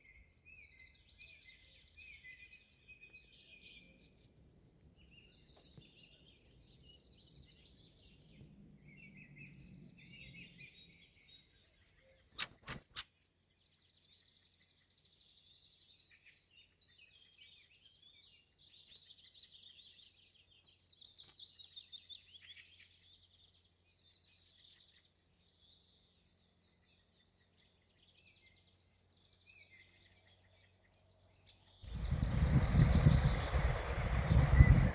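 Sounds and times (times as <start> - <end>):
songbirds singing and trilling: 0.0 - 34.9
sharp clicks: 12.3 - 13.1.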